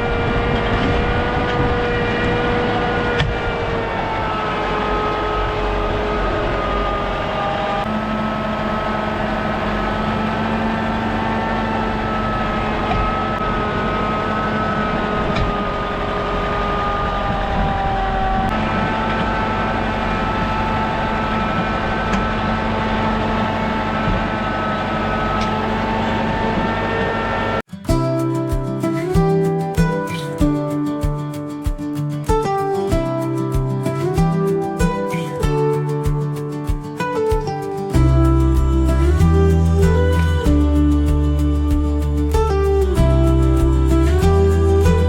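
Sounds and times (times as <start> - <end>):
large engine running under load: 0.0 - 27.6.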